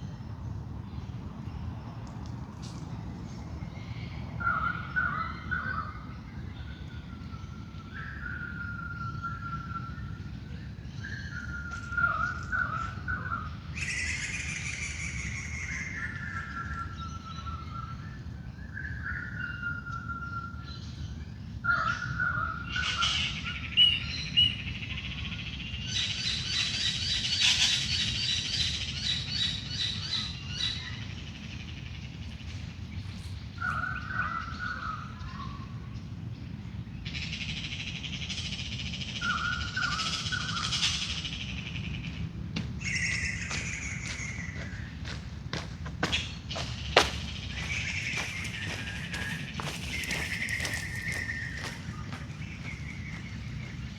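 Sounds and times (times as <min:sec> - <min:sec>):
birds chirping and trilling: 0:03.6 - 0:53.9
steady low rumble: 0:30.8 - 0:53.9.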